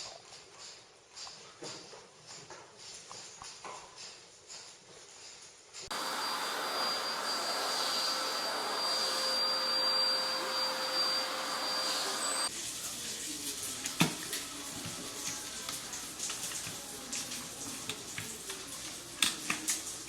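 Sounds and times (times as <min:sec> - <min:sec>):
appliance motor whining: 0:05.9 - 0:12.5.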